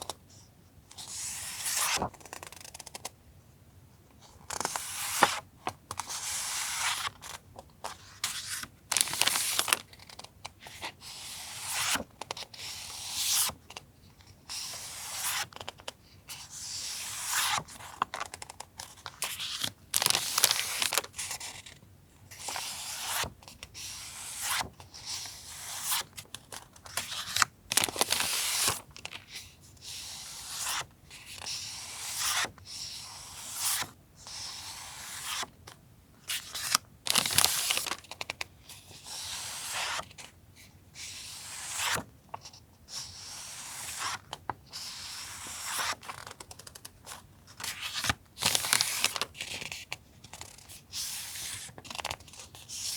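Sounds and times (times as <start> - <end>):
paper rustling and crinkling: 36.5 - 38.4.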